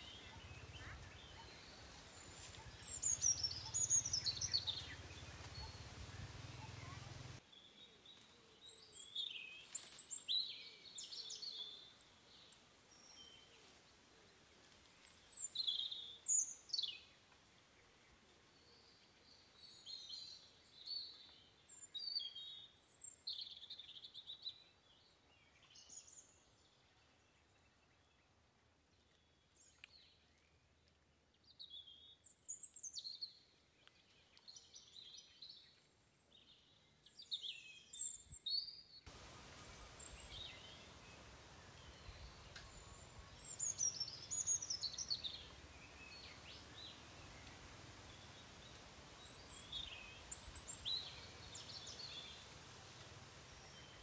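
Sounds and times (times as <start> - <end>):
birds chirping and calling: 0.0 - 7.1
steady low hiss: 0.0 - 7.8, 39.1 - 54.0.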